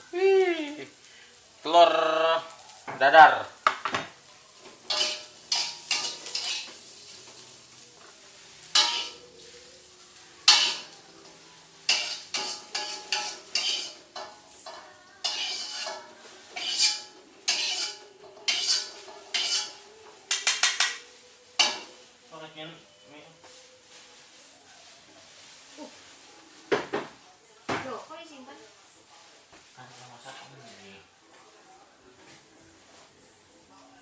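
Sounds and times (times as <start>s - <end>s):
metal utensil clinking against dish: 4.8s - 6.8s, 8.7s - 9.3s, 10.5s - 11.0s, 11.9s - 22.0s.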